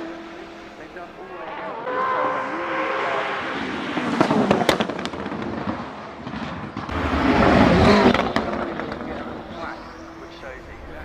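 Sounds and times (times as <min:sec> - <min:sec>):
car engine revving loudly: 0:00.0 - 0:05.8, 0:06.9 - 0:11.0
exhaust pops and bangs: 0:04.1 - 0:09.6.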